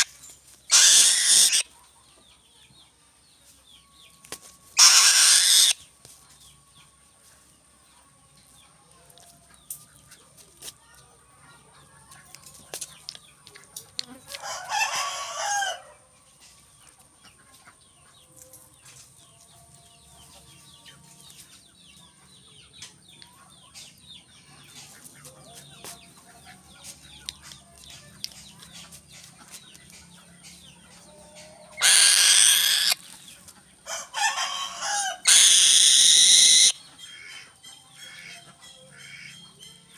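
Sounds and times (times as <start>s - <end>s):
loud bird calls: 0.7s - 1.8s, 4.8s - 5.8s, 31.7s - 33.3s, 34.1s - 39.5s.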